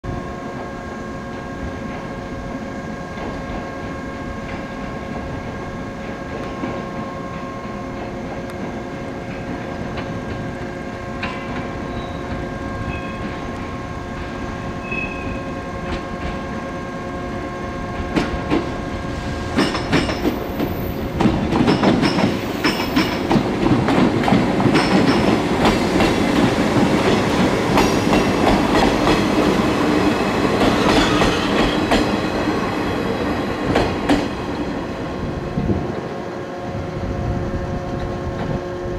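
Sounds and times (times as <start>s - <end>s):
high wheel squeals: 11.8s - 13.5s
train wheels clacking over joints: 19.5s - 29.5s, 30.6s - 32.3s.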